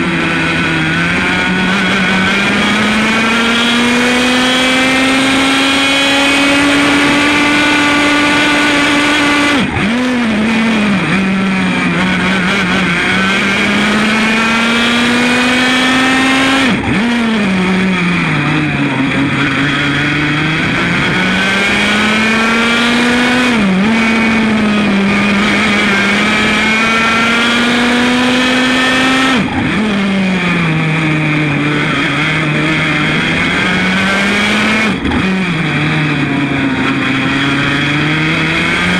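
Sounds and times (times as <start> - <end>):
kart engine revving: 0.0 - 38.9.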